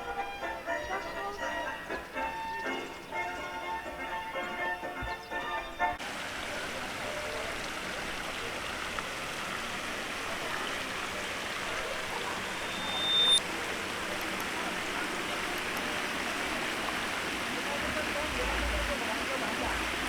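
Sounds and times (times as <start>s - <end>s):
short high tone: 12.5s - 13.4s.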